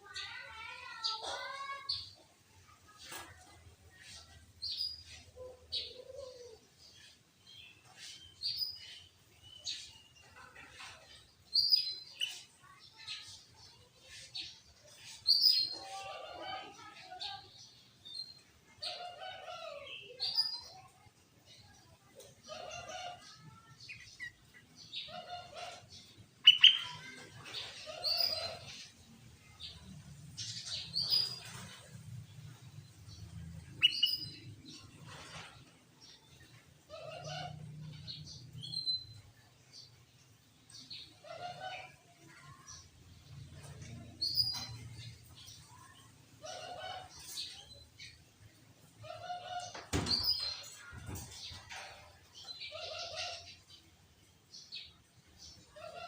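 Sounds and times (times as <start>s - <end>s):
bird singing short phrases: 26.4s - 27.0s.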